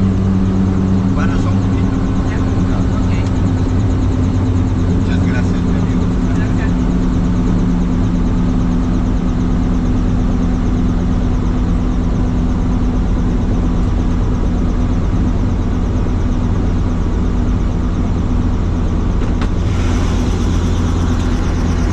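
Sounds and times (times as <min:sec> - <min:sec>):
helicopter engine and rotor: 0:00.0 - 0:21.9.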